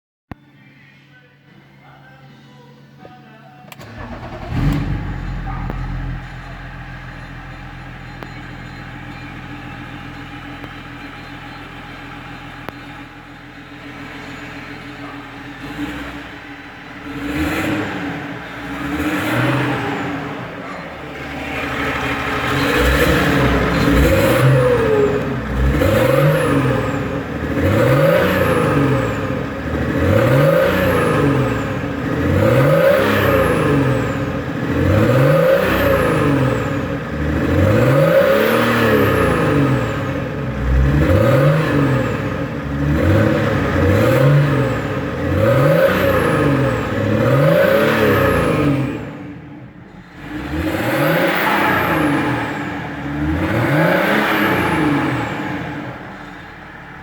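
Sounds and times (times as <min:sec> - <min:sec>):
diesel engine revving: 0:03.7 - 0:57.0.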